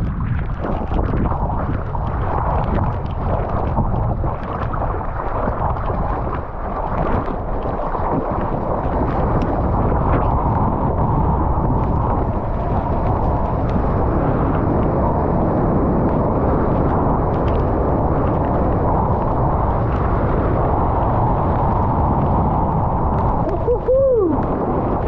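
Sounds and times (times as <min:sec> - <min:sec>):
surf washing: 0:00.0 - 0:25.0
wind on microphone: 0:00.0 - 0:25.0.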